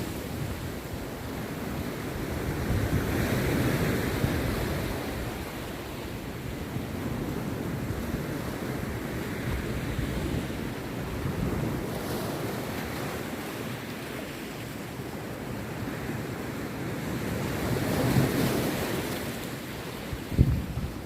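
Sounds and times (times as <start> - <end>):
sea surf breaking on beach: 0.0 - 21.0
wind buffeting microphone: 20.0 - 21.0.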